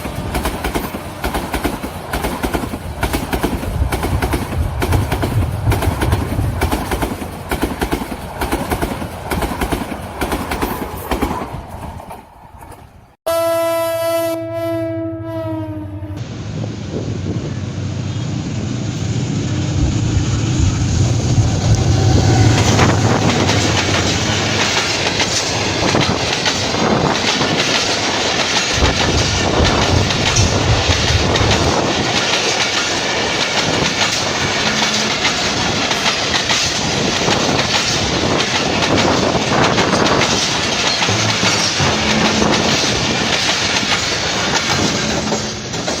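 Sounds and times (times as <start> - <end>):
train passing with deep rumble: 0.0 - 13.2, 14.4 - 46.0
wheels clattering over rail joints: 21.8 - 46.0.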